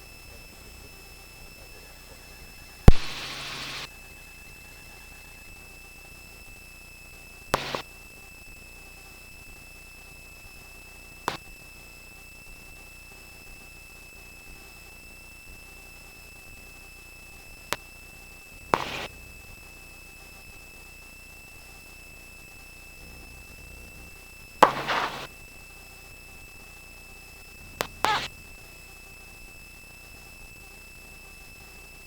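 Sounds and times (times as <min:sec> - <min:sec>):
high-pitched electronic whine: 0:00.0 - 0:07.9, 0:18.2 - 0:32.0
sharp clicks: 0:02.9 - 0:03.9, 0:18.8 - 0:19.1, 0:27.7 - 0:28.4
short bursts of hiss: 0:02.9 - 0:03.9, 0:24.6 - 0:25.3.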